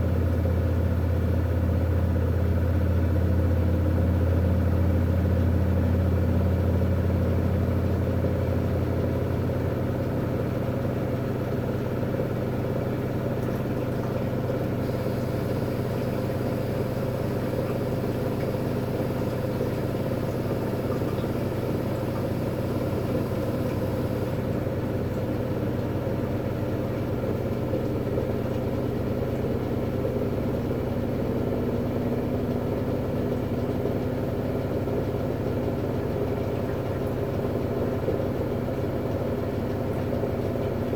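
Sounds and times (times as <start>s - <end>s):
washing machine motor hum: 0.0s - 40.9s.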